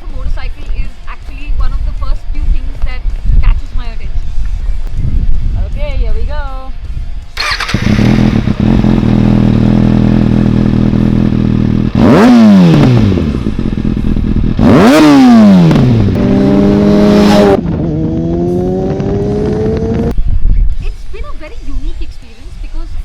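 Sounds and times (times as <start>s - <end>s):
motorcycle engine idling and revving: 7.2s - 20.2s.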